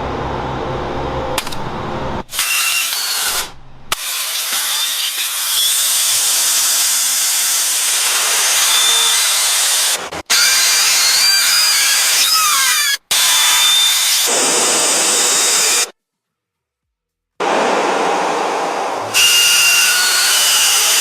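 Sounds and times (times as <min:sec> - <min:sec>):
power tool hissing whir: 0:02.3 - 0:12.5, 0:13.1 - 0:15.9, 0:17.4 - 0:21.0.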